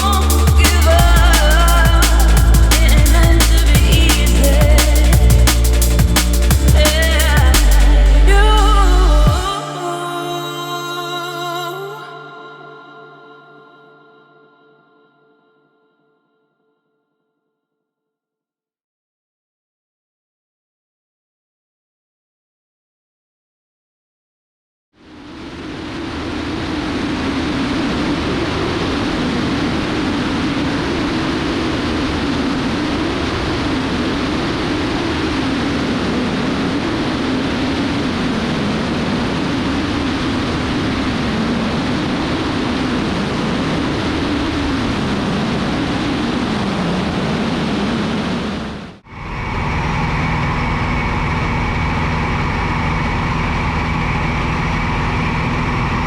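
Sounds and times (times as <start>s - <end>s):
steady drone with humming tones: 0.0s - 9.5s, 49.1s - 56.0s
light aircraft engine drone: 49.2s - 56.0s.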